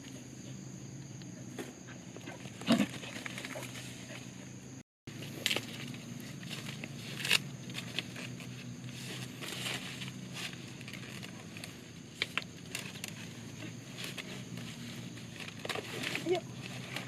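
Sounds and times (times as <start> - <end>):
crackles and snaps: 10.4 - 13.3.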